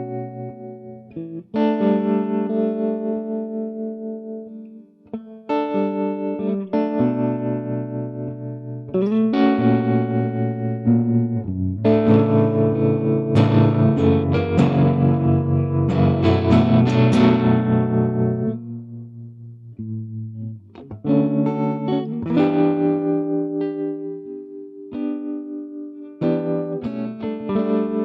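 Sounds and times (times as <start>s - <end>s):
distorted electric guitar: 5.2s - 25.6s.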